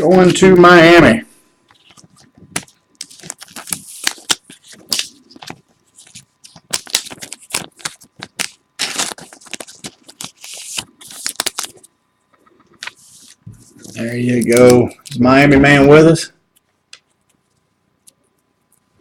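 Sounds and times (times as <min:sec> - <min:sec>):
card packaging crinkling: 0:01.7 - 0:12.0, 0:12.6 - 0:15.2.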